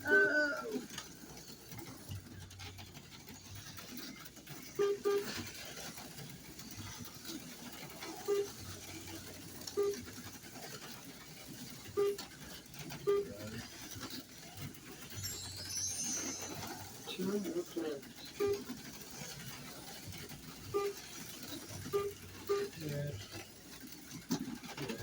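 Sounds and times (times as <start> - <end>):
light clicking of slot cars: 0.0 - 25.0
short electronic beeps: 12.0 - 12.2, 21.9 - 22.8.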